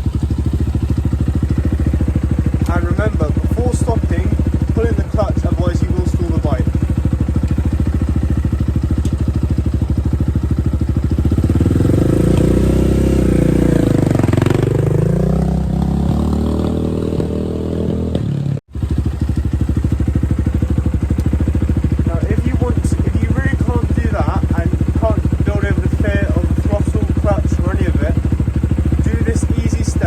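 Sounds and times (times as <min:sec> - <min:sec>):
dirt bike engine idling and revving: 0:00.0 - 0:30.0.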